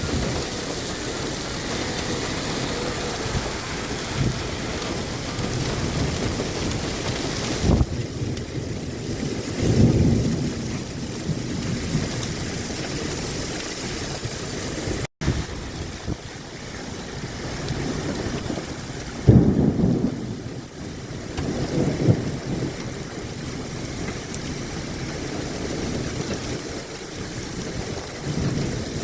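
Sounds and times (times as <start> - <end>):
low rumbling surges: 0.0 - 10.4
heavy rain: 0.0 - 29.0
wind buffeting microphone: 0.0 - 29.0.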